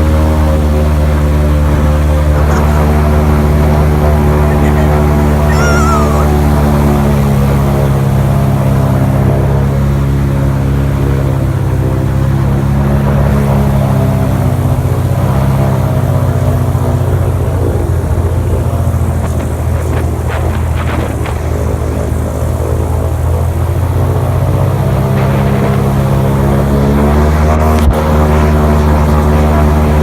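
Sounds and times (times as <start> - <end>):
boat motor droning: 0.0 - 30.0.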